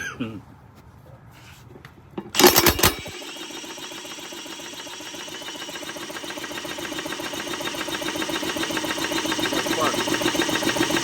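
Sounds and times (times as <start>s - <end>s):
lawnmower engine running: 2.3s - 11.0s.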